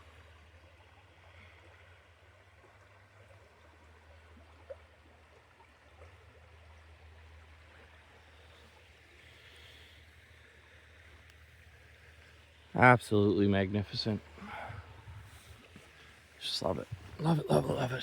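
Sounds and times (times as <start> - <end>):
small stream running: 0.0 - 18.0.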